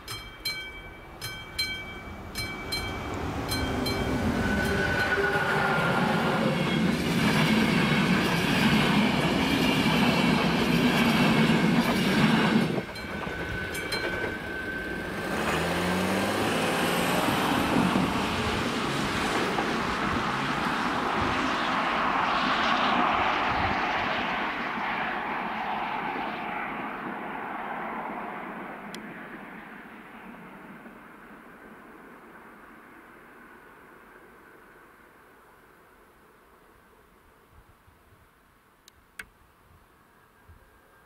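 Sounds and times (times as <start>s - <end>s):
train wheels clattering on rails: 0.1s - 20.8s
car engine accelerating: 15.1s - 19.2s.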